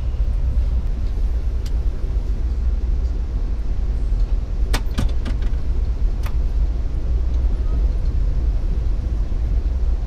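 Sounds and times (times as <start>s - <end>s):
train rumble inside coach: 0.0s - 10.0s.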